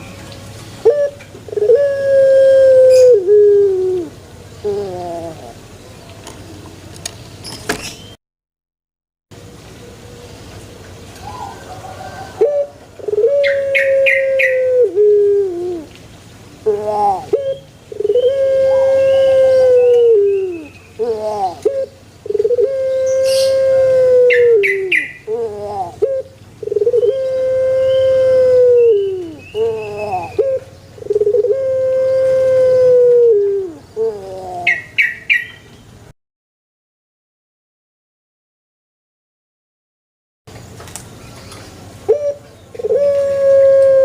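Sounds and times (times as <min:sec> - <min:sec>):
dove cooing: 0:00.8 - 0:05.7, 0:11.2 - 0:16.0, 0:16.6 - 0:35.4, 0:42.0 - 0:44.0.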